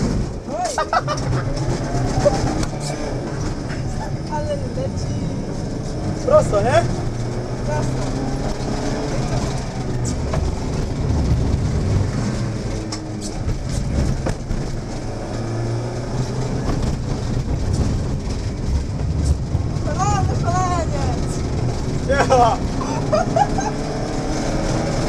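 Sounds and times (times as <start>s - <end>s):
car engine revving: 0.0s - 25.0s
tyre and road noise: 0.0s - 25.0s
sharp knocks: 12.4s - 15.5s.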